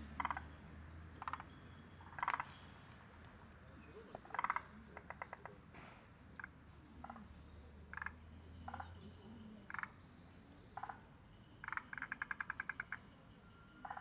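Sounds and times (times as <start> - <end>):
frogs calling: 0.0 - 2.6, 4.1 - 5.6, 7.9 - 9.0, 9.6 - 10.0, 10.8 - 13.2.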